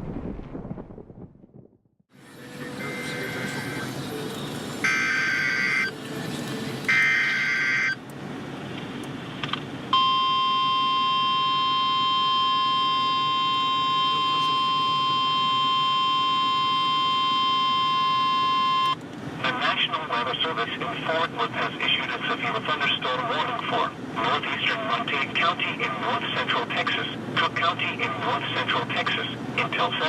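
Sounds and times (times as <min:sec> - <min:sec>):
steady warning alarm tone: 0:02.6 - 0:04.0, 0:04.8 - 0:06.0, 0:06.9 - 0:08.0, 0:09.9 - 0:19.0.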